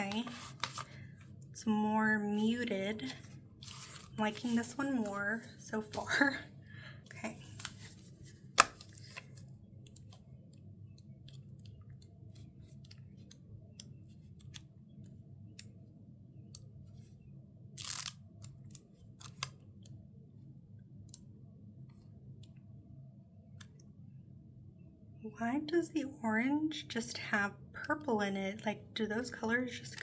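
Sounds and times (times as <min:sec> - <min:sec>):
paper pages being leafed through: 0:00.0 - 0:01.1, 0:02.9 - 0:06.1
paper rustle: 0:00.0 - 0:01.1, 0:03.0 - 0:06.0
low steady hum: 0:00.0 - 0:30.0.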